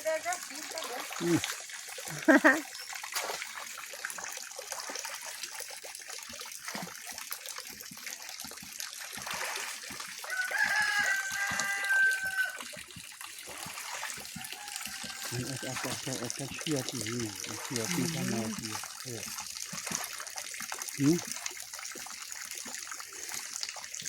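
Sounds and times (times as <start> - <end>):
water splashing and trickling: 0.0 - 24.0
rooster crowing: 10.3 - 12.7, 14.4 - 16.1.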